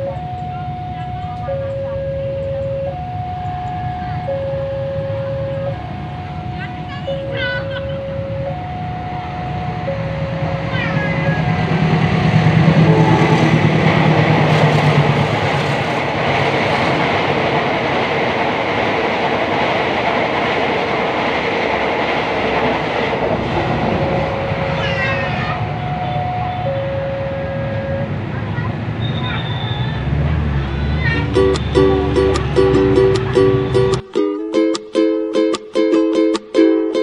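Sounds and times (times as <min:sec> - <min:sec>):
two-tone crossing alarm: 0:00.0 - 0:16.2, 0:22.6 - 0:34.0
train cars rolling: 0:00.0 - 0:34.0
train engine hum: 0:00.0 - 0:34.0.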